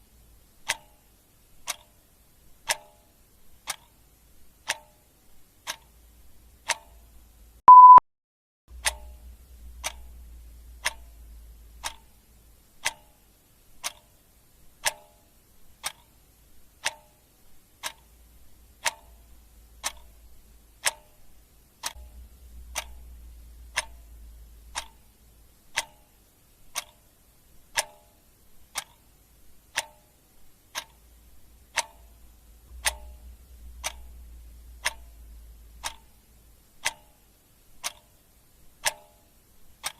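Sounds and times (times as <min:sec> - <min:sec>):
clock ticking: 0:00.5 - 0:08.0, 0:08.7 - 0:39.9
short electronic beep: 0:07.7 - 0:08.0.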